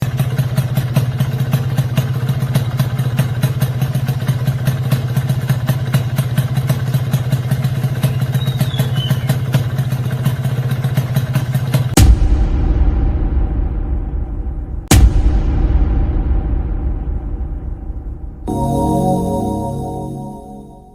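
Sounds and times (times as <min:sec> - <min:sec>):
two-stroke engine idling: 0:00.0 - 0:12.0.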